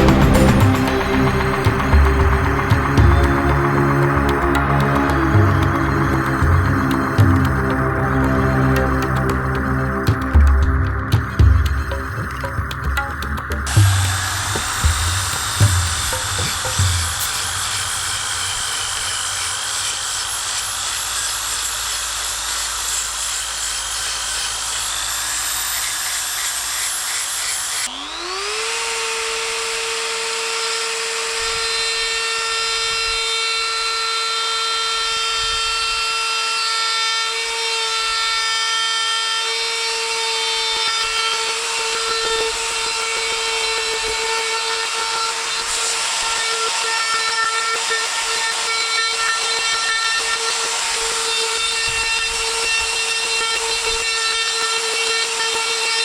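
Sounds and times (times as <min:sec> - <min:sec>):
rough wood grinding: 0:00.0 - 0:27.9
carving tool motor whine: 0:00.0 - 0:56.0.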